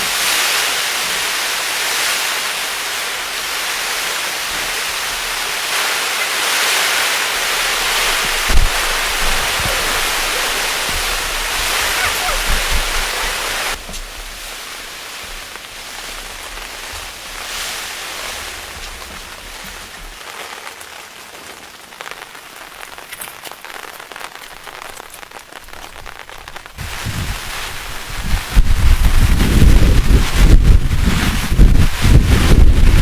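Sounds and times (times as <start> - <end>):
steady rain: 0.0 - 33.0.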